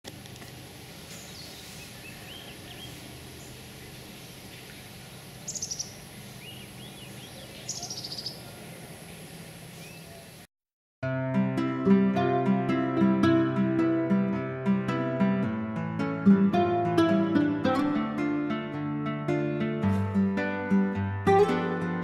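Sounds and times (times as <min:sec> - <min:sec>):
outdoor background hiss: 0:00.1 - 0:10.5
songbirds calling: 0:00.8 - 0:10.5
high bird trills: 0:01.1 - 0:08.4.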